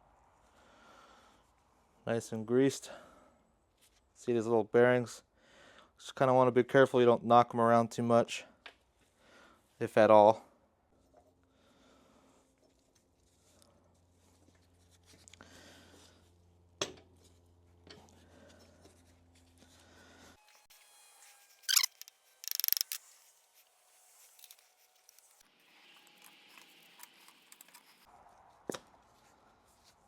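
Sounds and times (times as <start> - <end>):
sharp metal part clicks: 21.7 - 23.0.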